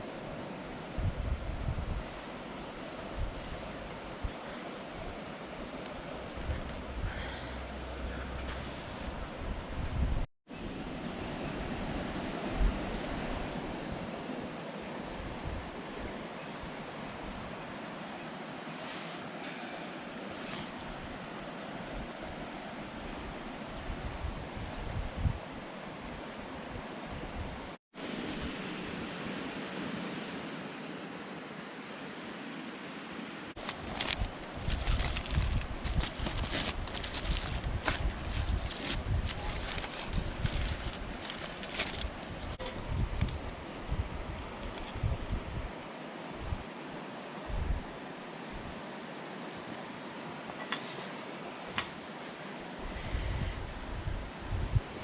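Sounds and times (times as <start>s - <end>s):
wind: 0.0s - 55.0s
wind buffeting microphone: 0.9s - 5.2s, 6.0s - 10.3s, 23.1s - 25.7s, 33.6s - 45.8s, 47.5s - 48.8s, 52.8s - 55.0s
flowing river water: 1.8s - 9.7s, 10.6s - 24.8s, 25.4s - 55.0s
campfire crackling: 33.6s - 43.8s.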